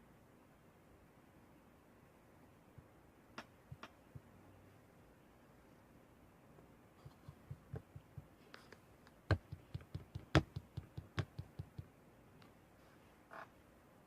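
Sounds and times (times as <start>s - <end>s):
soft taps and clicks: 7.0s - 12.6s.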